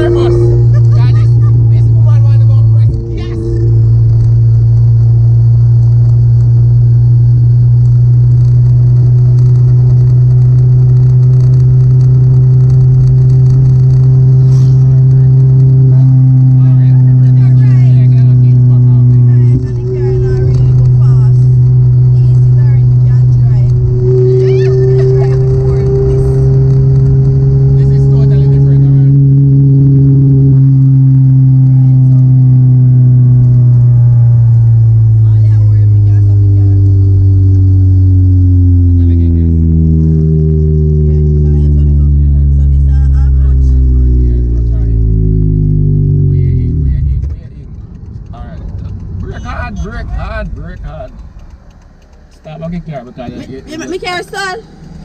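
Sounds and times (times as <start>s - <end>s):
car engine droning: 0.0s - 55.0s.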